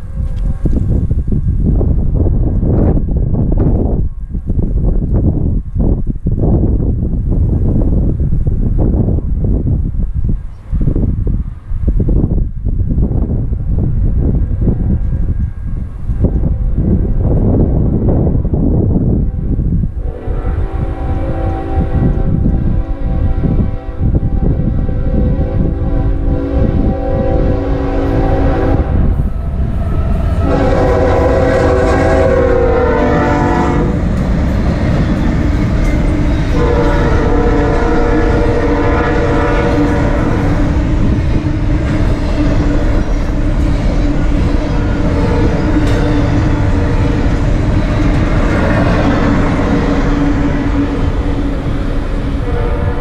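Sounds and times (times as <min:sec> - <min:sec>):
freight train rumble and clatter: 0:00.0 - 0:53.0
locomotive air horn blasts: 0:19.3 - 0:53.0.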